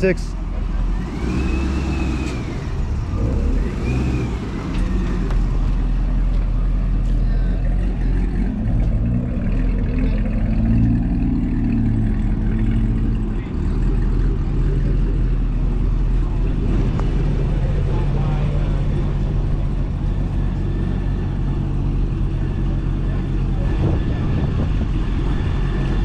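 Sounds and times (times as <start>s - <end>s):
car engines rumbling: 0.0s - 26.0s.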